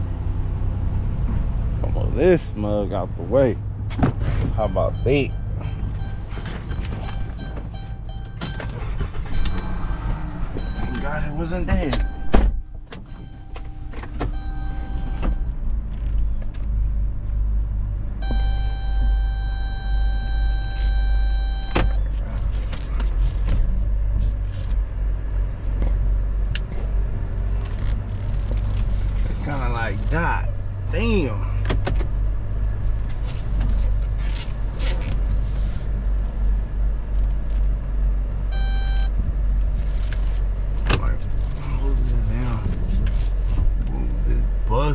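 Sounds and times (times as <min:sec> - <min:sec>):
car engine running: 0:00.0 - 0:44.9
electronic beep: 0:04.6 - 0:09.8, 0:10.6 - 0:15.4, 0:18.2 - 0:22.1, 0:38.5 - 0:39.1.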